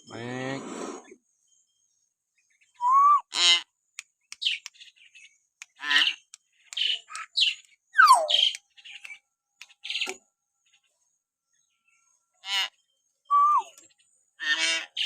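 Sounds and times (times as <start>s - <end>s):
bird clicks: 4.0s - 4.8s, 5.6s - 10.2s
bird whistles and squawks: 6.8s - 8.6s, 13.3s - 13.8s.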